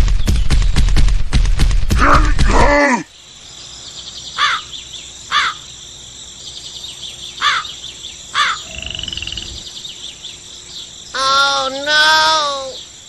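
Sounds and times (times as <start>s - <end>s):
insect drone: 1.6s - 13.0s
crow cawing: 4.4s - 4.7s, 5.3s - 5.7s, 7.4s - 9.6s.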